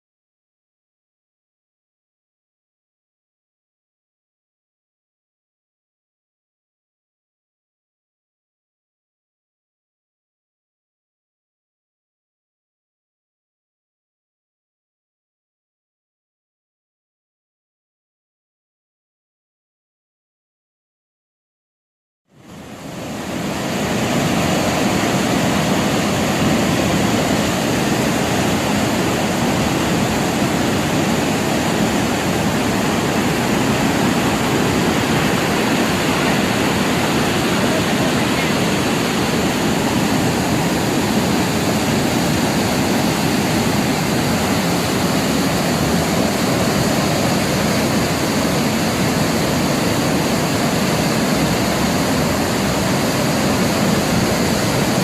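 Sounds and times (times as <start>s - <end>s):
waterfall rushing: 22.4s - 55.0s.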